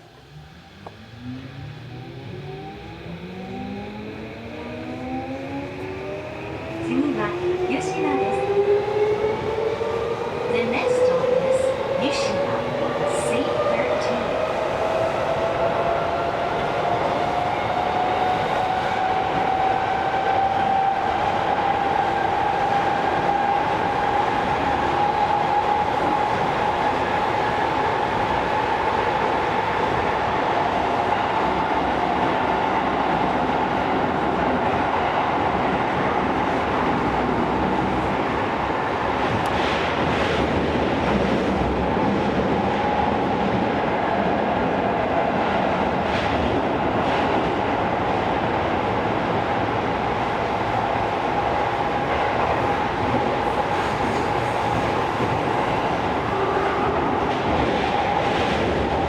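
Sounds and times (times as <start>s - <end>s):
traction motor whine: 0.0s - 7.0s.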